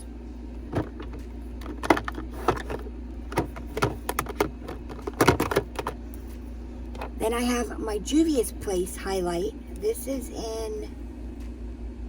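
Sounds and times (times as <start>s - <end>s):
plastic makeup cases clicking: 0.7s - 6.0s.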